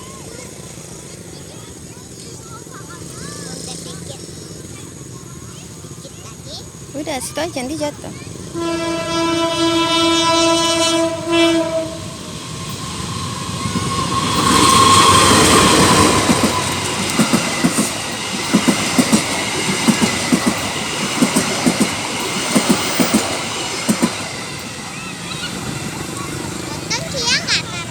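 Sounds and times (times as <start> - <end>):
train rushing past: 0.0 - 27.9
wheels clattering over rail joints: 0.0 - 27.9
train horn: 8.5 - 17.1.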